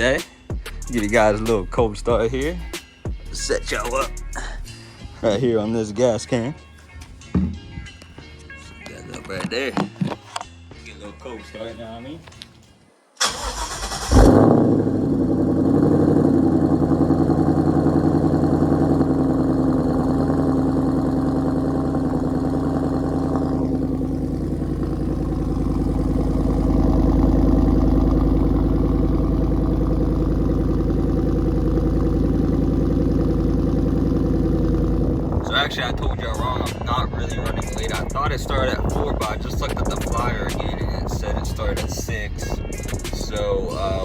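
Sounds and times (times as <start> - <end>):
car engine starting and idling: 0.0 - 4.7, 13.2 - 44.0
starter motor cranking: 13.2 - 14.6.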